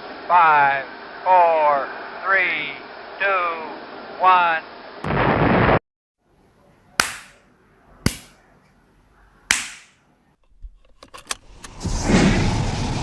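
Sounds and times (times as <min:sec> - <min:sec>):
loud rushing rumble: 0:11.7 - 0:13.0.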